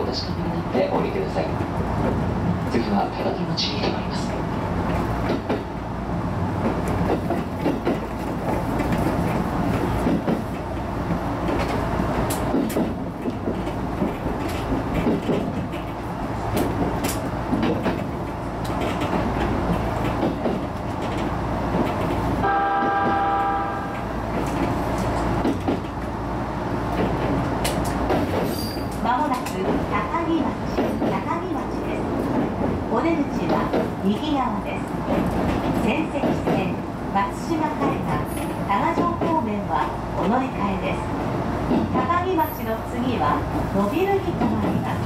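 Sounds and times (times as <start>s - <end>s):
train wheels rumbling on rail: 0.0s - 45.0s
wheels clicking over rail joints: 6.6s - 23.2s
train horn blast: 22.4s - 24.0s.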